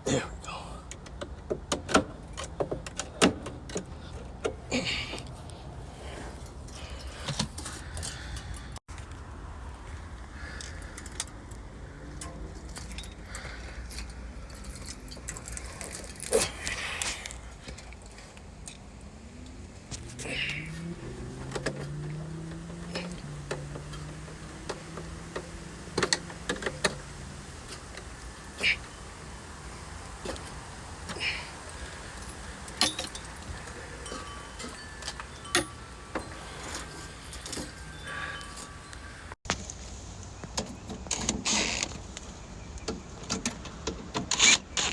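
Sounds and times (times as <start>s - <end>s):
metallic clicks and rattles of tools: 10.6s - 19.0s, 20.9s - 39.1s.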